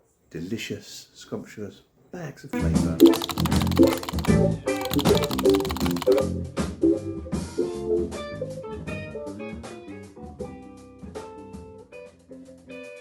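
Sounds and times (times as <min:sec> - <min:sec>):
plucked guitar and drums music: 0:02.6 - 0:04.4.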